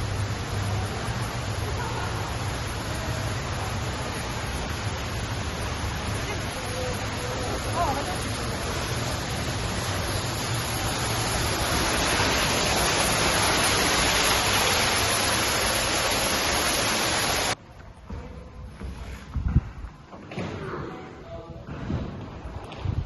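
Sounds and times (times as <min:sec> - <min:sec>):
waterfall rushing: 0:00.0 - 0:17.6.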